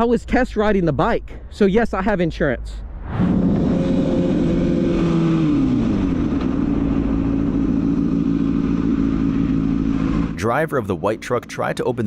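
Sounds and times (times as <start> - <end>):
motorcycle engine running: 3.4 - 12.0.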